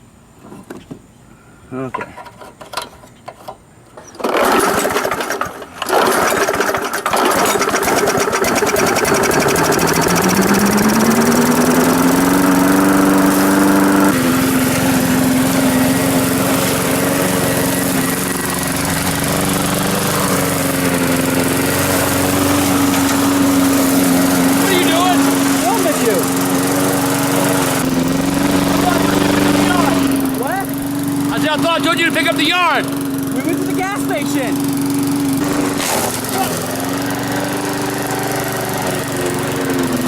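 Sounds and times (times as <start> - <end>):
lawn mower engine starting: 2.0 - 40.0.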